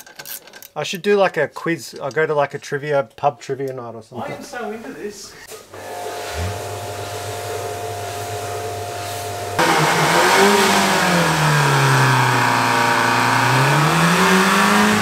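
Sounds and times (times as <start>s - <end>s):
car engine running: 9.6s - 15.0s.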